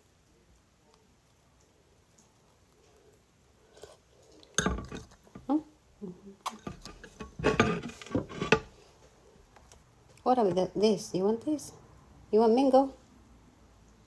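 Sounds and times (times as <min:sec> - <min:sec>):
dishes and cutlery clinking: 0:04.6 - 0:05.5, 0:06.5 - 0:08.7.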